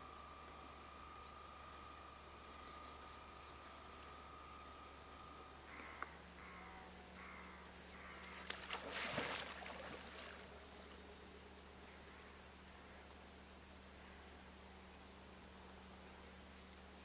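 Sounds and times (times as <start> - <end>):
faint harsh bird calls: 0.0 - 9.4
steady low hum: 0.0 - 17.0.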